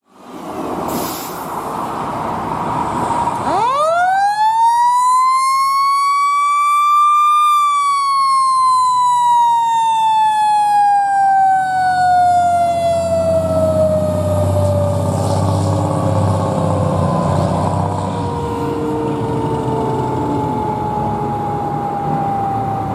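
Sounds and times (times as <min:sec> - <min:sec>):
fire engine siren winding: 0:03.4 - 0:22.9
low engine rumble: 0:11.4 - 0:22.9.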